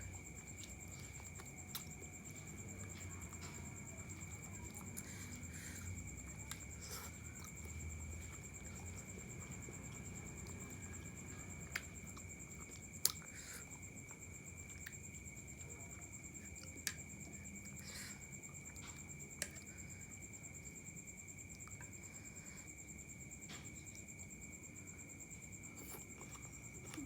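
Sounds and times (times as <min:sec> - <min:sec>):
chewing and slurping: 0:00.1 - 0:19.8, 0:25.6 - 0:27.0.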